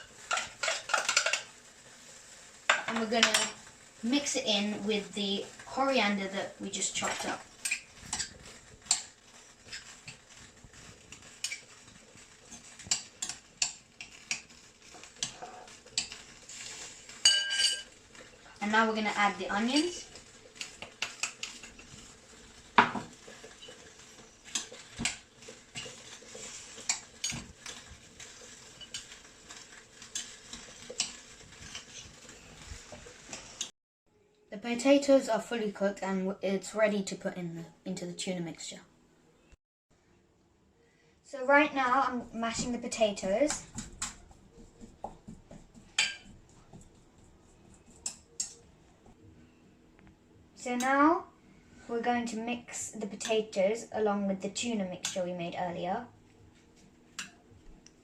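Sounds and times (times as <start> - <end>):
spoon clinking and scraping bowl: 12.5 - 18.0, 23.4 - 32.0, 46.0 - 46.4
potatoes being mashed: 42.6 - 49.2.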